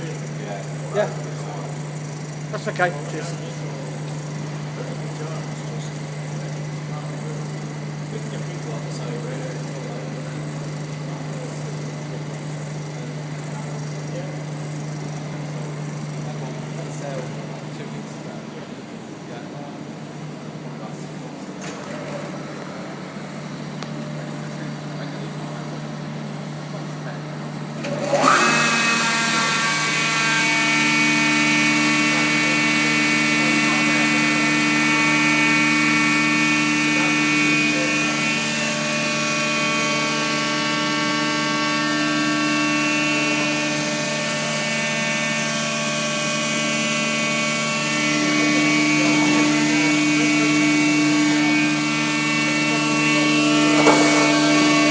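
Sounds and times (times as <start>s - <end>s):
sawing machine high whine: 0.0s - 54.9s
steady machine hum: 0.0s - 54.9s.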